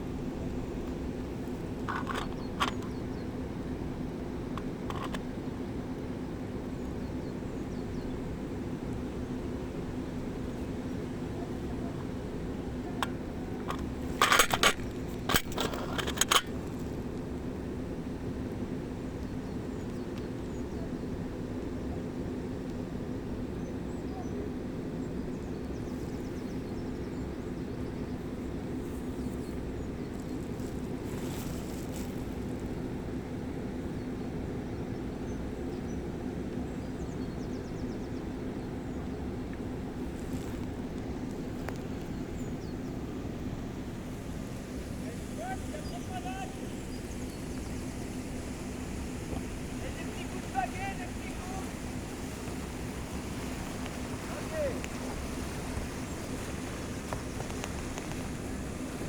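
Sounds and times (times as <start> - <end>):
faint hum: 0.0 - 59.0
steady low rumble: 26.7 - 59.0
river rushing: 44.1 - 59.0.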